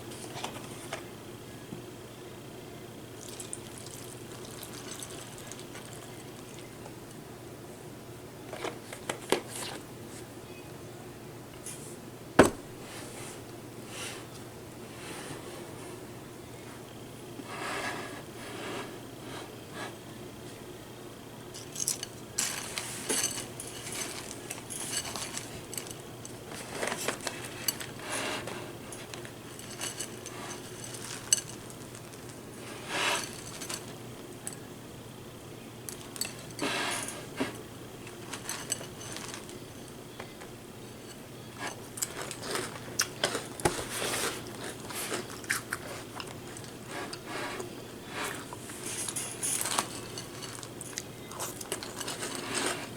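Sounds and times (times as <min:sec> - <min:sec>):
cereal being chewed: 0:03.2 - 0:06.8, 0:41.8 - 0:47.3, 0:48.2 - 0:52.9.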